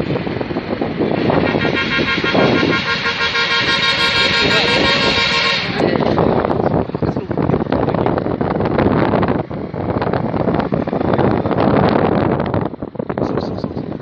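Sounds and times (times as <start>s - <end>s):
road and wind noise: 0.0s - 14.0s
vehicle horn: 1.2s - 6.2s.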